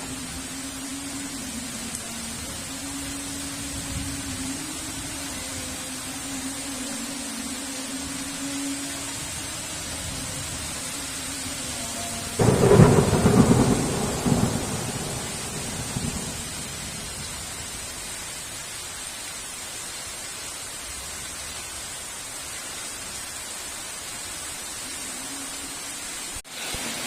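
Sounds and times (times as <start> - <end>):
heavy rain falling: 0.0 - 27.0
thunderclap rumbling: 12.4 - 17.8.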